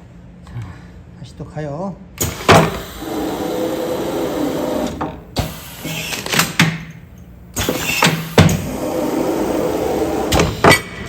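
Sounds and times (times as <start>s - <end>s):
sealing machine motor hum: 2.2s - 7.0s.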